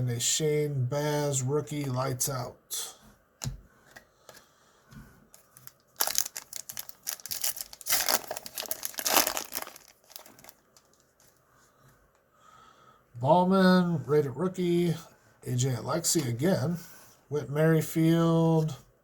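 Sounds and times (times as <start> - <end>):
card pack wrapper crinkling: 5.4 - 11.4.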